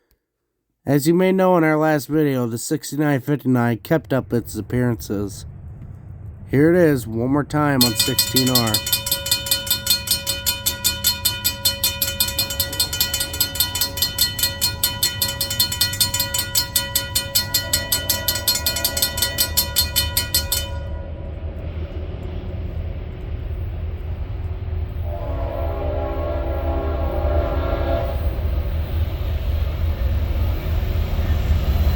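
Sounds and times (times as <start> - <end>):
locomotive rumble: 2.1 - 31.9
bell ringing fast: 7.8 - 21.2
locomotive horn: 24.9 - 28.7.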